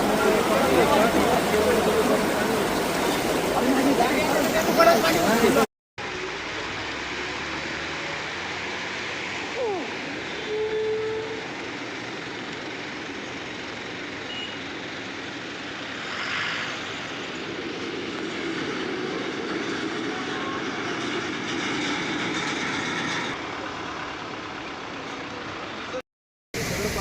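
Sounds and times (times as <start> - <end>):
metro train running: 0.0 - 6.8, 15.4 - 24.7
hiss: 15.8 - 17.5.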